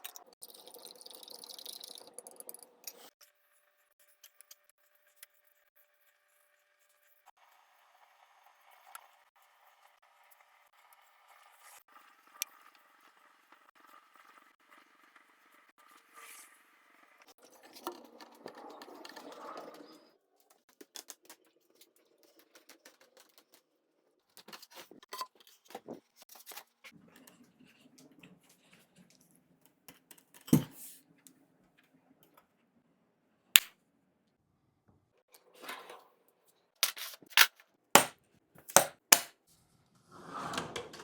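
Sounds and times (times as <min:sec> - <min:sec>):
objects clicking and tapping: 0:36.8 - 0:39.3.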